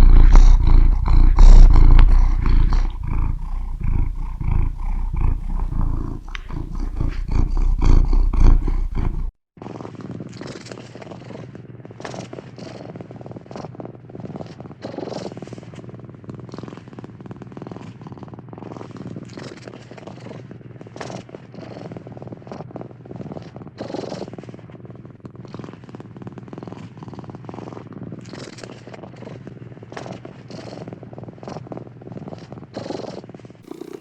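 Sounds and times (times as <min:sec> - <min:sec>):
cat purring: 0:00.0 - 0:34.0.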